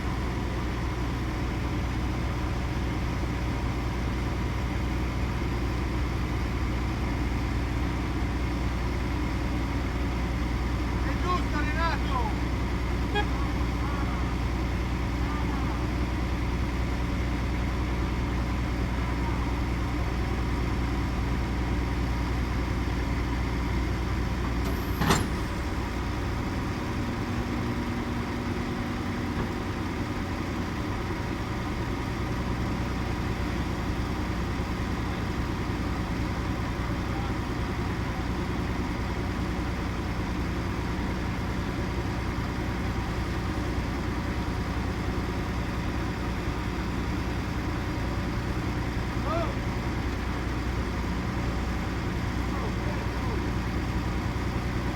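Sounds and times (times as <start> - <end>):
diesel farm machinery droning: 0.0 - 54.9.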